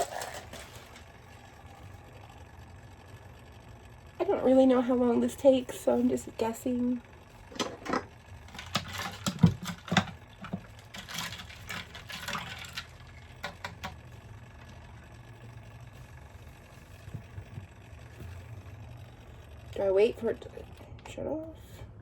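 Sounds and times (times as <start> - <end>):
kitchen appliance motor humming: 0.0 - 22.0
knocks and clatter: 7.5 - 14.0.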